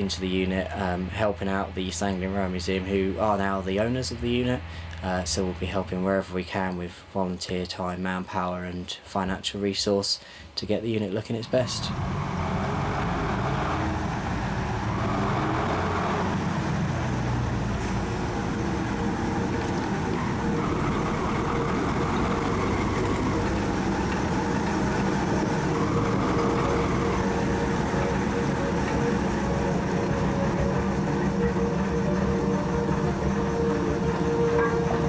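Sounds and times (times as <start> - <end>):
heavy vehicle engine running: 11.5 - 35.0.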